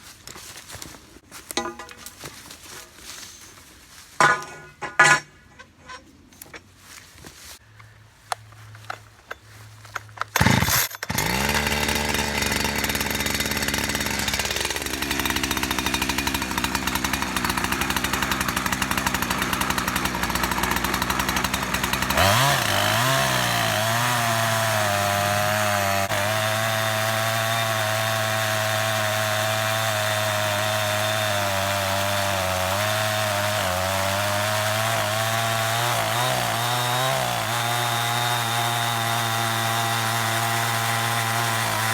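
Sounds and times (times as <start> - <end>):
chainsaw cutting log: 10.2 - 41.9
chainsaw starting and idling: 10.2 - 41.9.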